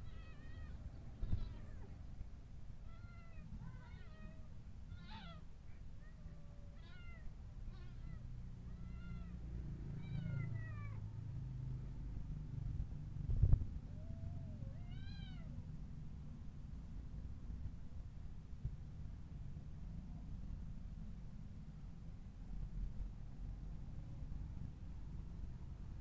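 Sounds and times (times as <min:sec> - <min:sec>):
cat meowing: 0:00.0 - 0:02.0, 0:02.8 - 0:09.4, 0:10.0 - 0:11.0, 0:14.0 - 0:15.6.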